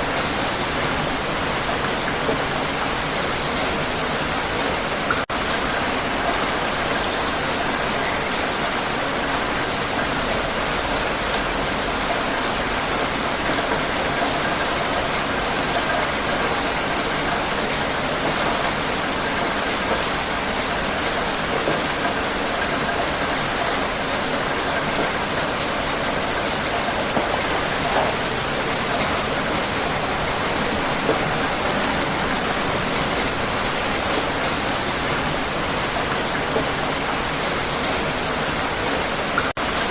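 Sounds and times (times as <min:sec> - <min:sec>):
heavy rain falling: 0:00.0 - 0:39.9
raindrop patters: 0:10.0 - 0:39.9.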